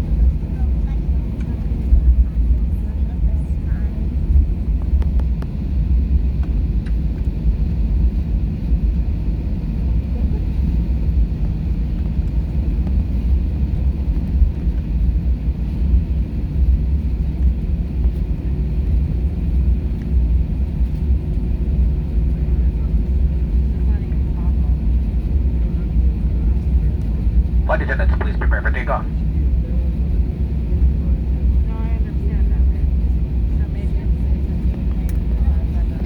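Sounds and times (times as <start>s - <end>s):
jet engines rumbling in cabin: 0.0s - 36.0s
faint steady hum: 27.5s - 29.2s.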